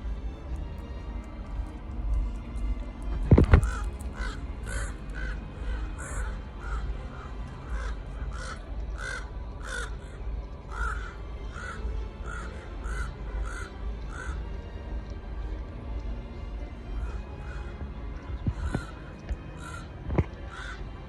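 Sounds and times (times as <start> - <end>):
steady low rumble: 0.0 - 21.0
crows cawing: 3.4 - 14.8, 17.0 - 21.0.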